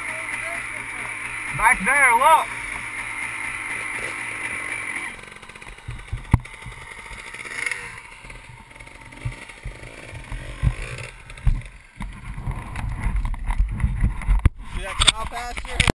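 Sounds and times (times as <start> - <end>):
dirt bike rumble: 0.0 - 15.9.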